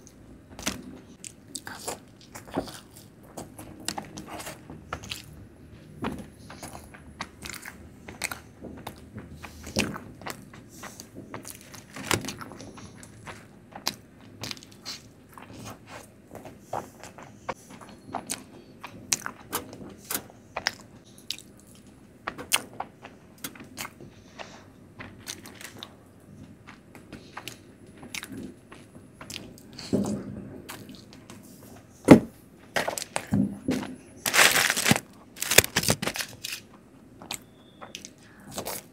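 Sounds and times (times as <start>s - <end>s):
person chewing: 0.6s - 3.1s, 3.8s - 5.3s, 20.1s - 21.8s, 27.4s - 28.3s.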